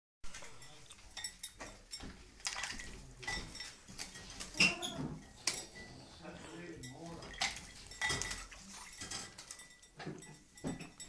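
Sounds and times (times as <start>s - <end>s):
taps and clinks against dish: 0.4s - 5.9s, 6.8s - 11.0s
water splashing: 2.3s - 10.4s.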